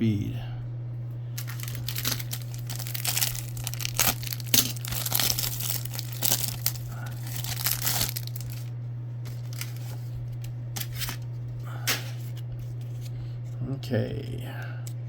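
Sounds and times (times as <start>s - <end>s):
steady low hum: 0.0s - 15.0s
foil wrapper crinkling: 1.4s - 11.2s.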